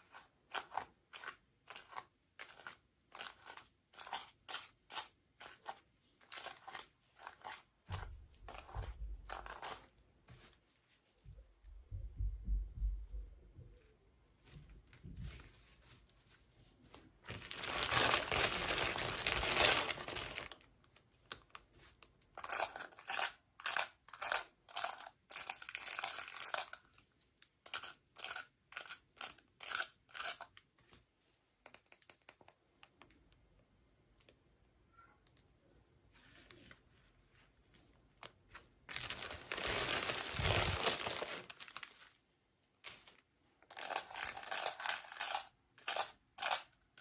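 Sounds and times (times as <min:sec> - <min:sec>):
plastic packaging crinkling: 0:17.3 - 0:21.6, 0:38.2 - 0:42.2
plastic packaging tearing: 0:17.4 - 0:20.6, 0:38.9 - 0:42.1.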